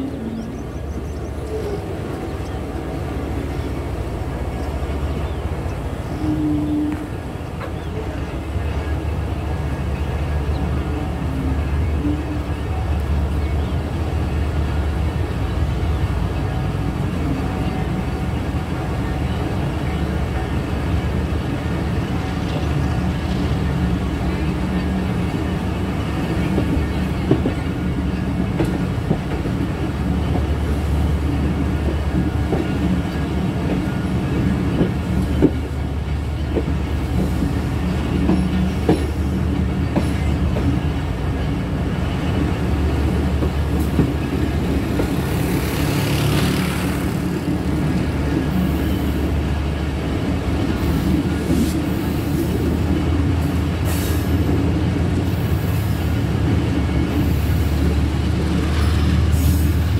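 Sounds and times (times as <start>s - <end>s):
train rumbling on rails: 0.0s - 59.9s
sharp clacks of train wheels: 20.9s - 59.9s.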